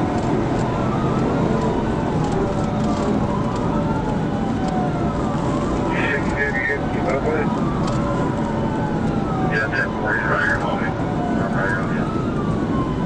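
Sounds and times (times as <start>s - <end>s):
police siren wailing: 0.0s - 13.0s
road and wind noise: 0.0s - 13.0s.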